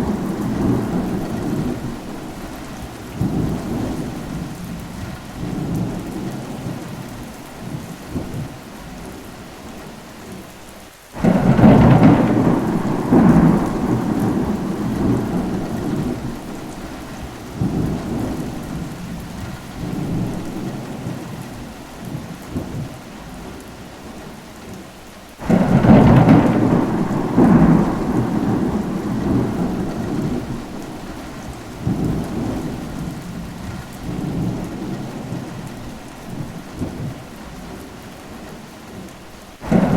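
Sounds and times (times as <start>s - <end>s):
loud thunder claps: 0.0s - 6.8s, 11.2s - 21.3s, 25.4s - 37.3s, 39.6s - 39.9s
rolling thunder: 0.0s - 7.0s, 11.2s - 23.0s, 25.4s - 37.8s, 39.6s - 39.9s
steady rain: 0.0s - 39.9s.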